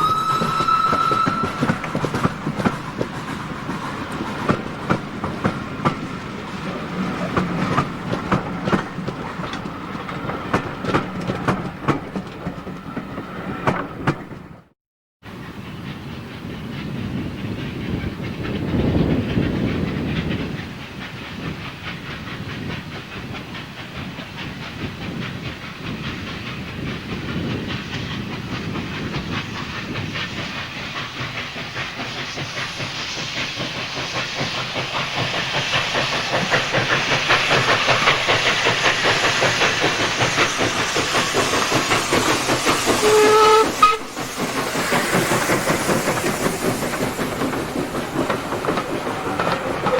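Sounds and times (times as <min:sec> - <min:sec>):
steam locomotive hissing: 0:00.0 - 0:14.6, 0:15.3 - 0:49.9
train wheels clicking over rail joints: 0:00.0 - 0:14.7, 0:15.3 - 0:49.9.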